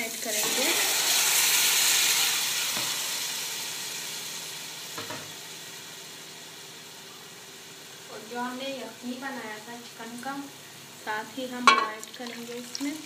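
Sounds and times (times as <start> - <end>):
grains sizzling in hot oil: 0.0 - 9.4, 10.1 - 13.0.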